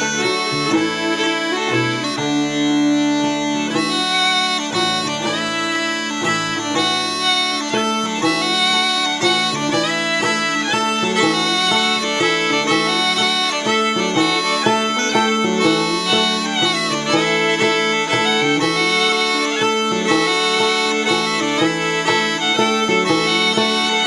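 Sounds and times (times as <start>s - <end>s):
banjo plucking: 0.0s - 24.0s
smallpipes waltz melody with drone: 0.0s - 24.0s.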